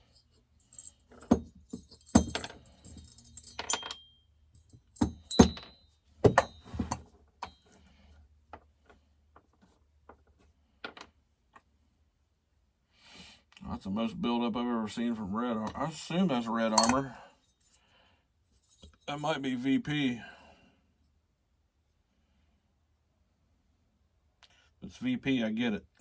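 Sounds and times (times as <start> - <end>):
metal tools clinking and knocking: 0.6 - 7.7, 16.7 - 17.7.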